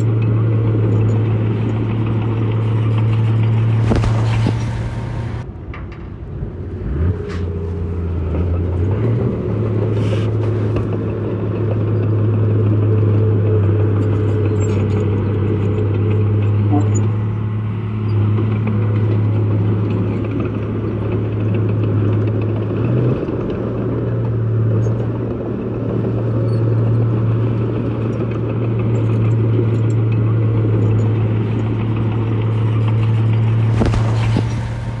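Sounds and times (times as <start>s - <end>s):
diesel engine running: 0.0s - 5.5s, 26.9s - 35.0s.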